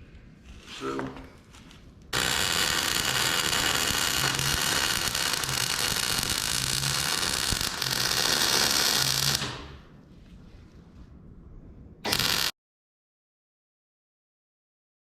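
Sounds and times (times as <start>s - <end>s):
electric arc welding crackle: 1.5s - 9.9s, 12.0s - 12.5s.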